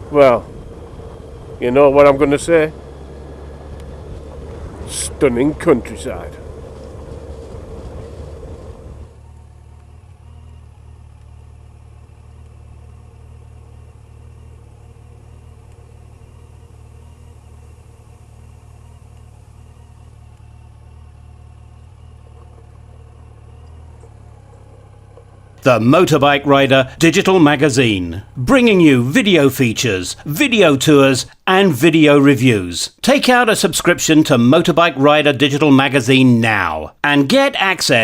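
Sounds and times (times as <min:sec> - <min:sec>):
riding and wind noise: 0:00.0 - 0:10.0
motorcycle engine idling: 0:00.0 - 0:25.7.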